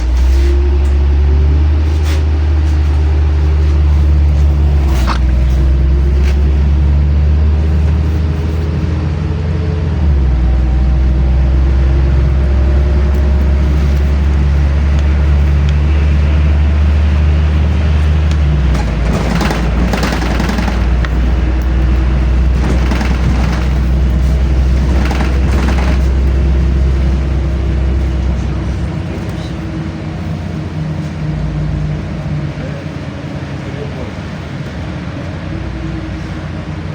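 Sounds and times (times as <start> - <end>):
bus body rattling and knocking: 0.0 - 36.9
bus engine running: 0.0 - 36.9.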